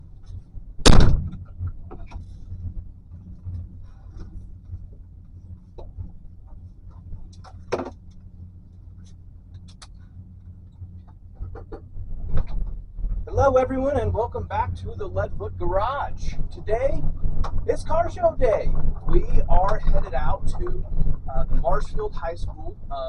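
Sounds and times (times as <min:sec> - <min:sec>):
low vehicle rumble: 0:00.0 - 0:23.0
sharp knock: 0:00.8 - 0:01.4
loud thump: 0:00.8 - 0:01.5
small clicks: 0:06.9 - 0:12.7.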